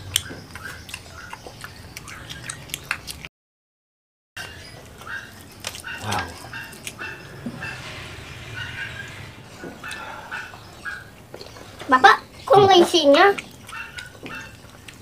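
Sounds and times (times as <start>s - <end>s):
wet chewing and lip smacks: 0.0s - 3.3s, 4.4s - 7.2s, 13.3s - 15.0s
squeaky mouth noises: 4.4s - 8.0s.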